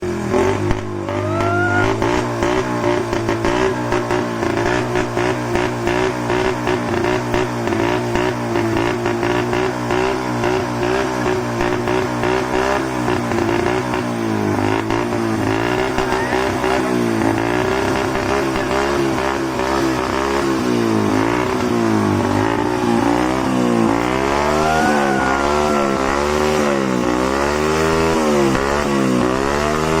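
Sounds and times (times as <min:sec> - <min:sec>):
vehicle engine running: 0:00.0 - 0:30.0
short rising whine: 0:22.3 - 0:27.8.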